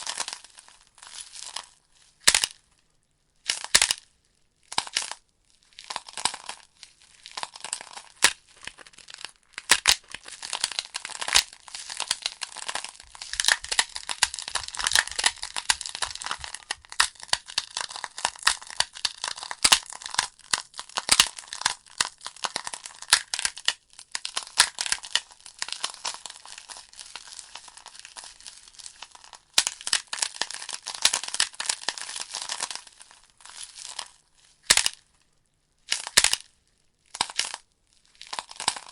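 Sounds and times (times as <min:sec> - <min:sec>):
logs popping and snapping: 0:00.0 - 0:02.6, 0:03.5 - 0:04.0, 0:05.8 - 0:35.0, 0:35.9 - 0:36.5, 0:37.1 - 0:38.9.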